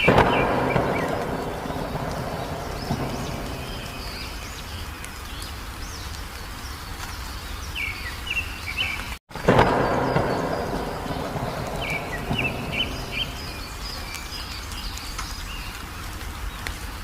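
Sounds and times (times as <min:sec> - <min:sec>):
low background rumble: 0:00.0 - 0:06.0, 0:09.5 - 0:15.1
wild birds chirping: 0:00.0 - 0:17.0.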